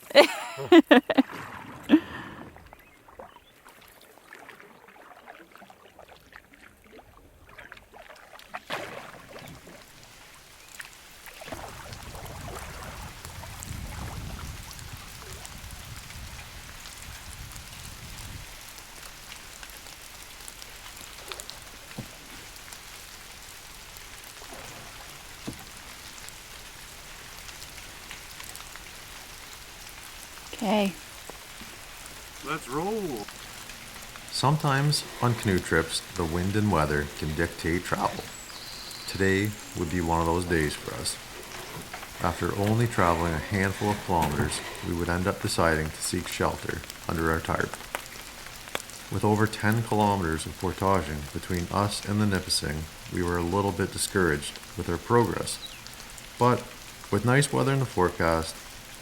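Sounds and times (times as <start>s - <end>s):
hiss of wind and water: 0.0s - 59.0s
paddle splashes and drips: 1.2s - 59.0s.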